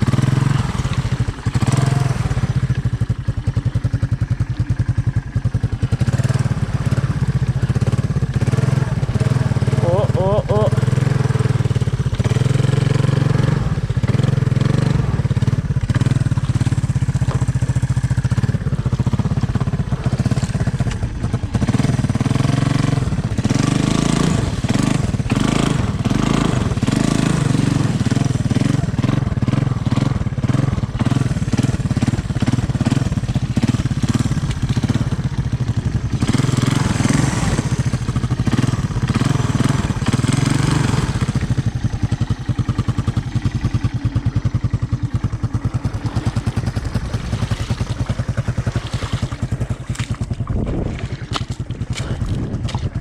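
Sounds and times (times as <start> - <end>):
three-wheeler engine running: 0.0 - 53.0.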